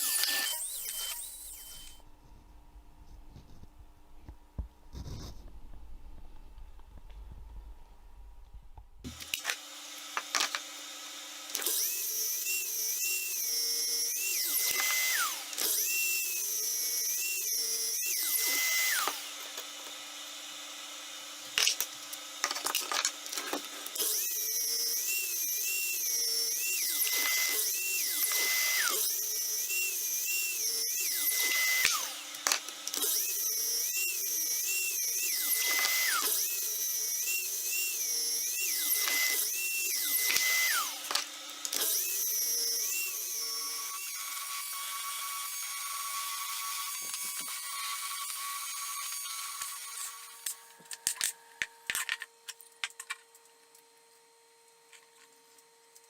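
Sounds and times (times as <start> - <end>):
power drill whining: 0.0 - 2.0, 9.1 - 50.7.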